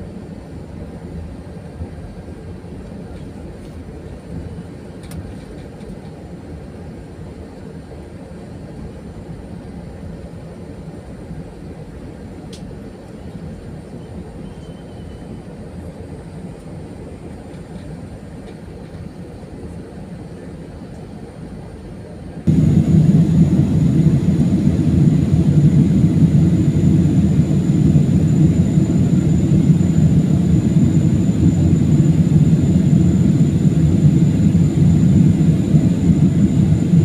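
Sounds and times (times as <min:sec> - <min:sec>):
airplane cabin drone: 0:00.0 - 0:37.0.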